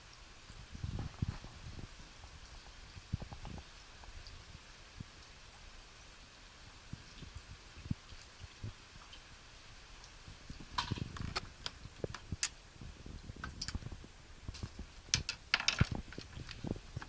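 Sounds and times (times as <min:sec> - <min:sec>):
kitten clicking and tapping on floor: 0:14.6 - 0:16.7.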